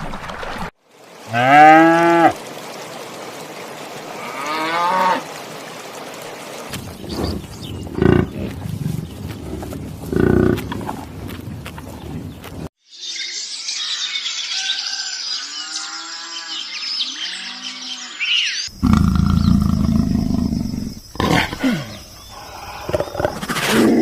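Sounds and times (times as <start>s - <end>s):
animals chirping: 6.7s - 12.7s, 15.4s - 24.0s
loud low animal growling: 18.8s - 24.0s.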